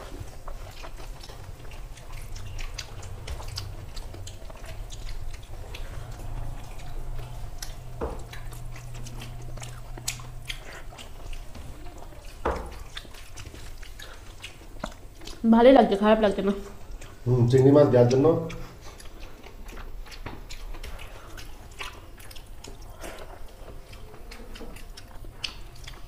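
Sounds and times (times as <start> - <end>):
low steady hum: 0.0 - 26.0
people chewing and lip-smacking: 0.0 - 26.0.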